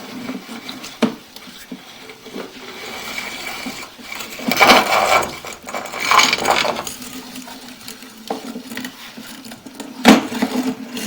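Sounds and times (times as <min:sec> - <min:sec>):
equipment scraping and clattering: 0:00.2 - 0:07.8.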